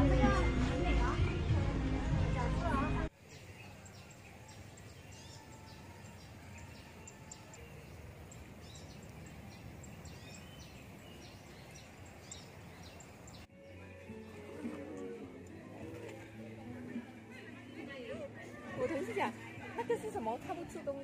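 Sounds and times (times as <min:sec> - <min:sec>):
outdoor background hiss: 0:03.1 - 0:13.5
small birds chirping: 0:03.1 - 0:13.8.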